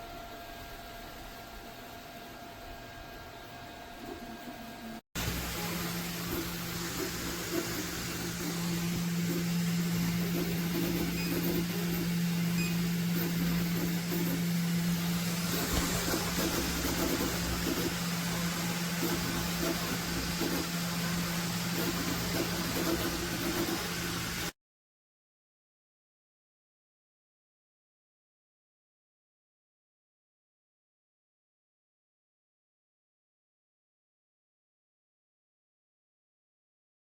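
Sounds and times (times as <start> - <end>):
printer hum and fan noise: 0.0 - 24.5
wavering motor whine: 3.6 - 24.5.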